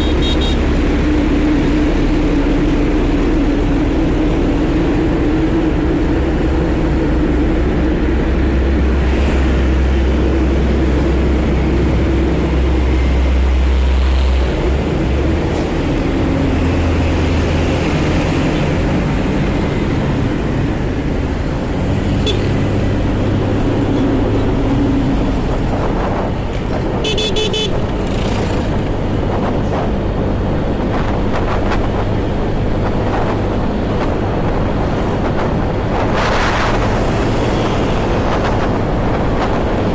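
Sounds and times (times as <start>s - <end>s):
vehicle horn toot: 0.0s - 0.6s, 22.2s - 22.5s, 27.0s - 27.8s
road traffic engines: 0.0s - 39.9s.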